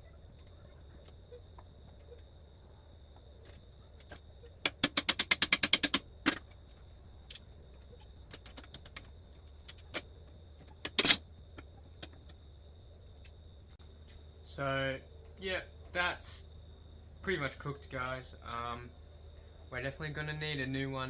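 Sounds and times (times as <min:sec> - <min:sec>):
ratchet wrench clicking: 0:04.5 - 0:06.6.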